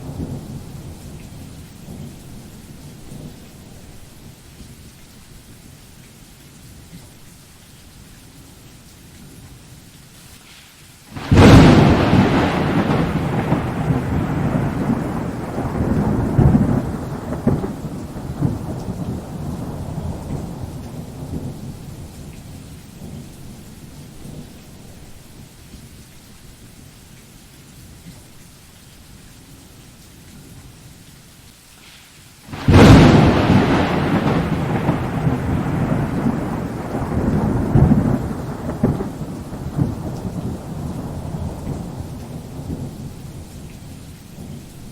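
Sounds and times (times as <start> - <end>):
thunder rumbling: 0.0 - 4.0, 11.2 - 25.2, 32.5 - 44.9
rain hissing: 0.0 - 44.9.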